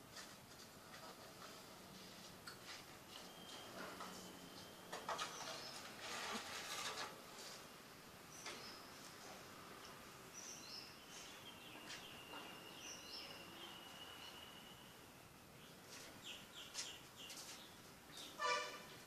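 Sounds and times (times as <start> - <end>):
faint high bird chirps: 3.1 - 5.9, 10.3 - 19.0.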